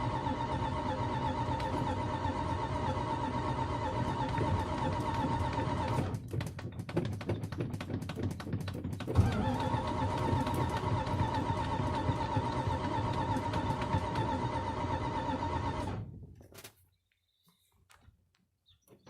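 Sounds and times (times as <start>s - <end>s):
engine running with a whine: 0.0s - 6.4s, 9.0s - 16.2s
engine clicking and sputtering: 0.0s - 16.4s.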